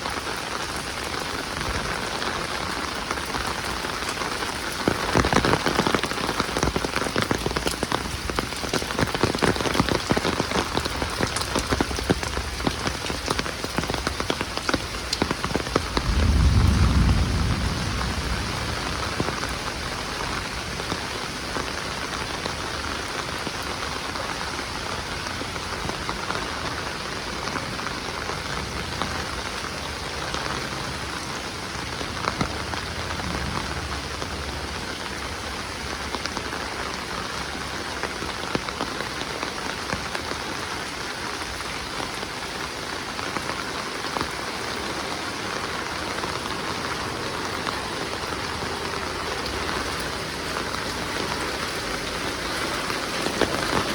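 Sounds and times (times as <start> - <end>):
heavy rain falling: 0.0 - 53.9
low rumble: 15.6 - 21.5.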